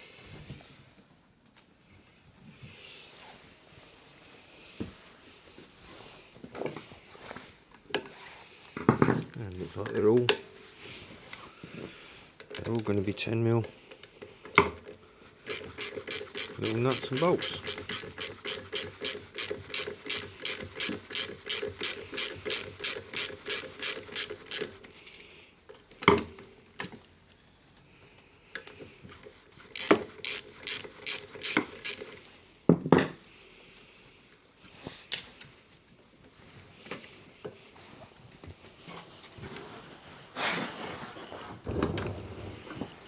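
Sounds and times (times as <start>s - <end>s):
ratchet wrench clicking: 15.4s - 25.5s, 29.7s - 32.3s.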